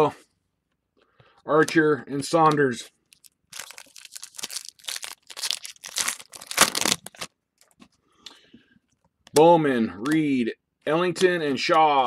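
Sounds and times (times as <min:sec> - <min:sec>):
foil pack crinkling: 0:03.1 - 0:07.8.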